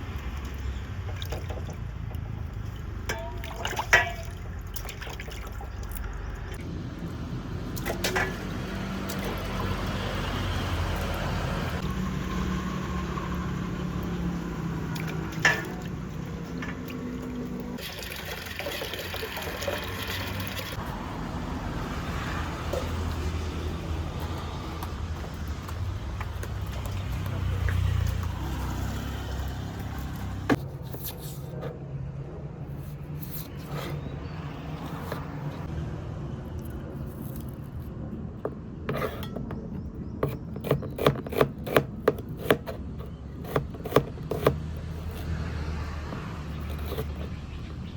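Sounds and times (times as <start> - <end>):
water running and pouring: 16.8 - 20.8.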